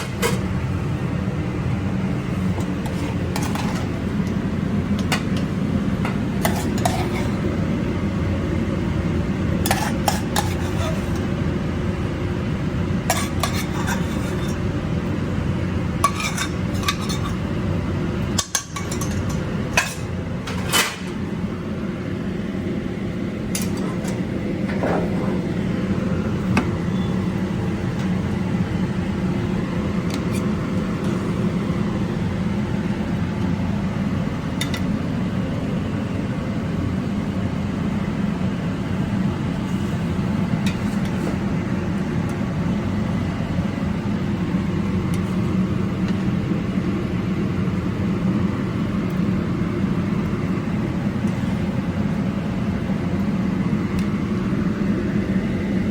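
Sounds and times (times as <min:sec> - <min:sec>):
steady low hum: 0:00.0 - 0:55.9
utensils clinking and scraping: 0:02.6 - 0:04.0, 0:06.4 - 0:07.4, 0:09.7 - 0:11.3, 0:13.1 - 0:14.6, 0:16.0 - 0:17.4, 0:18.4 - 0:21.1.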